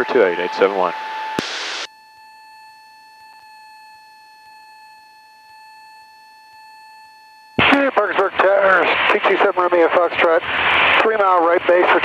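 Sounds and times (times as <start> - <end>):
high-pitched electronic whine: 0.0 - 2.2
static burst: 1.4 - 1.9.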